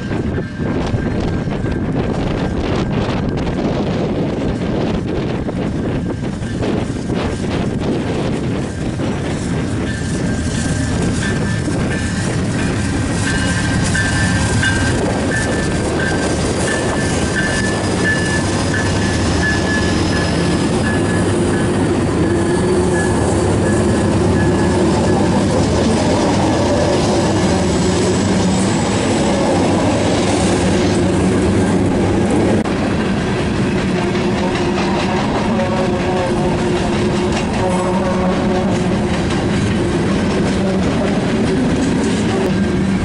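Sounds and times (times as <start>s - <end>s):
diesel locomotive engines running: 0.0s - 43.0s
high tone: 9.8s - 32.7s.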